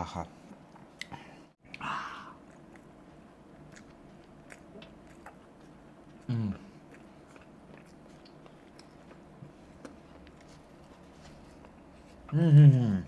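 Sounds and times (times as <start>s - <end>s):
chewing with wet mouth clicks: 2.4s - 10.9s
person humming low: 6.3s - 6.7s, 12.3s - 13.0s.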